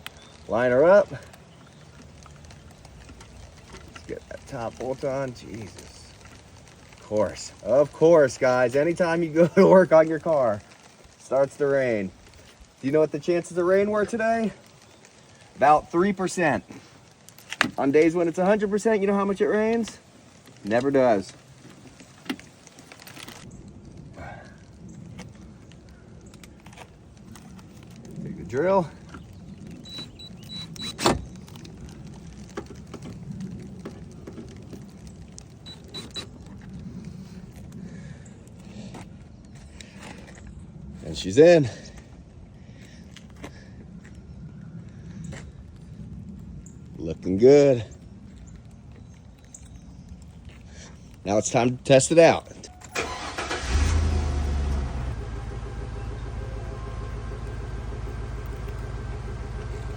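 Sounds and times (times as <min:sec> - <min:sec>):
engine starting and idling: 0:52.9 - 0:59.9.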